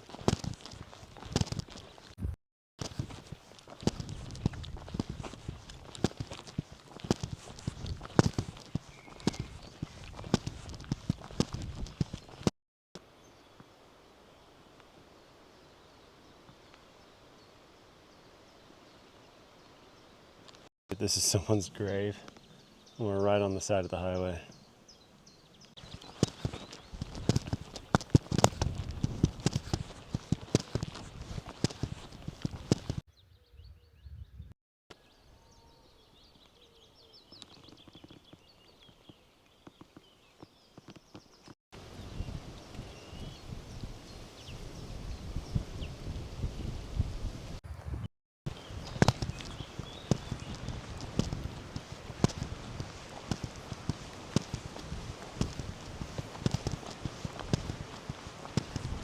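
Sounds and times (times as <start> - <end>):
footsteps: 0.0 - 12.5, 25.8 - 33.0, 48.5 - 59.0
outdoor background noise: 0.0 - 33.8, 34.9 - 59.0
songbirds chirping: 3.2 - 46.2, 48.5 - 59.0.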